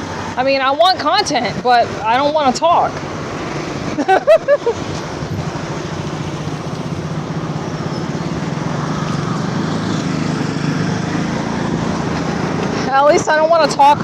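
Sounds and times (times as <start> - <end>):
road noise: 0.0 - 14.0
vehicle engine hum: 0.0 - 14.0.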